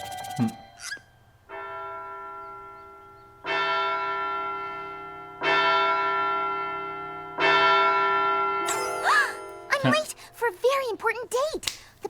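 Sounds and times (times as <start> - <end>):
large bell tolling: 1.5 - 10.4.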